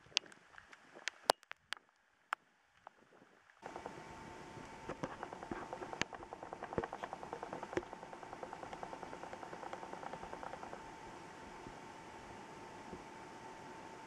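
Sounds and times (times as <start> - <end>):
steady rain hiss: 2.1 - 14.0
raindrops ticking on hard surface: 3.6 - 10.9.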